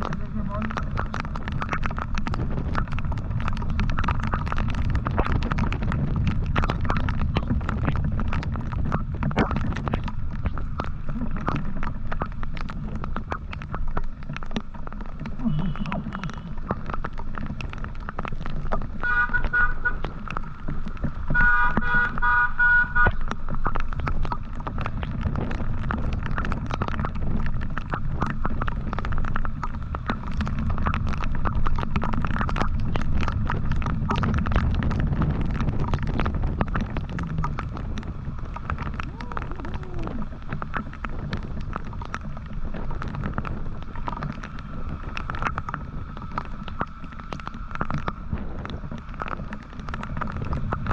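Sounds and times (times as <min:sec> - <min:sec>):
motorcycle rumble: 0:00.0 - 0:50.9
road and wind noise: 0:00.0 - 0:50.9
vehicle horn honking: 0:19.0 - 0:19.9, 0:21.4 - 0:23.1.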